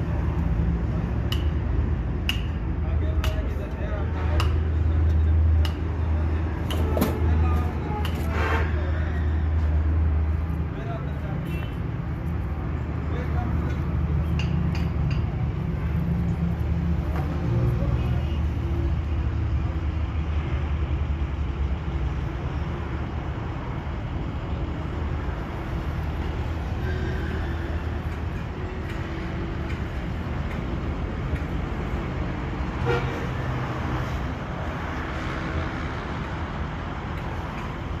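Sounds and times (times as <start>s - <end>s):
road traffic: 0.0s - 38.0s
vehicle horns: 11.4s - 11.8s, 32.7s - 33.5s.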